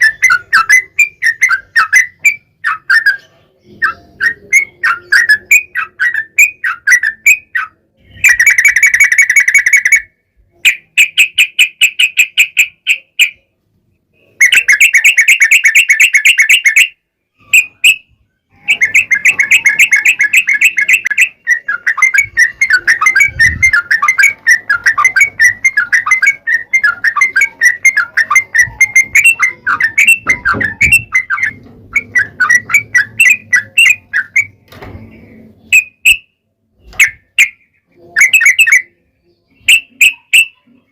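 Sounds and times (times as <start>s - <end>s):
bird quick varied chirps: 0.0s - 13.5s, 14.1s - 40.9s
bird trilled chatter: 0.0s - 13.5s, 14.3s - 36.2s, 36.8s - 40.8s.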